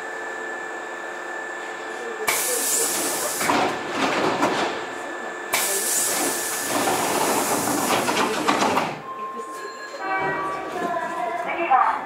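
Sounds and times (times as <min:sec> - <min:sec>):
train running noise with clicks: 0:01.6 - 0:04.9, 0:05.5 - 0:09.0
loud train hiss: 0:02.3 - 0:03.5, 0:05.5 - 0:08.2.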